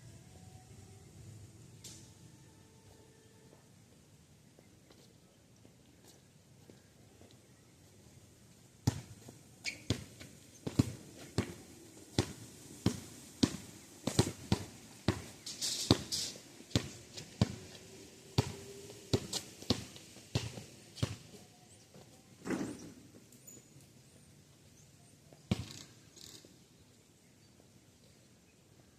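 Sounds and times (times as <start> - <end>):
basketball bouncing on pavement: 8.8 - 15.3, 15.9 - 17.8, 18.4 - 21.4, 25.5 - 25.8.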